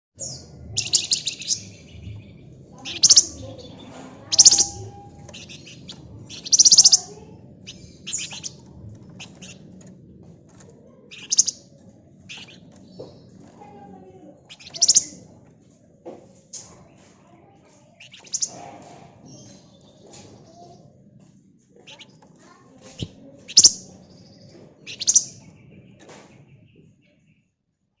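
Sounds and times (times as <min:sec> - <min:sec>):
low hum: 0:00.2 - 0:13.5
songbird chirps: 0:00.2 - 0:28.0
songbird buzzy high trills: 0:00.8 - 0:03.4, 0:04.3 - 0:07.1.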